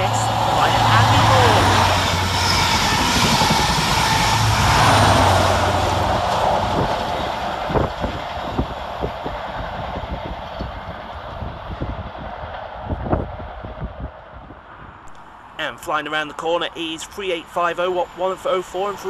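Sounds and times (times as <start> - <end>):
diesel engine hum: 0.0 - 10.2
train coaches rushing past: 0.0 - 13.2.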